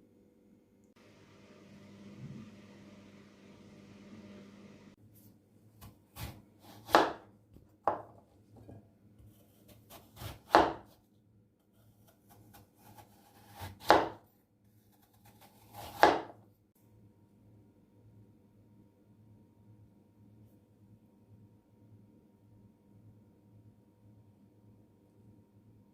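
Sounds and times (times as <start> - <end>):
knife cutting on wooden board: 5.2 - 11.0, 11.8 - 14.2, 14.8 - 16.4.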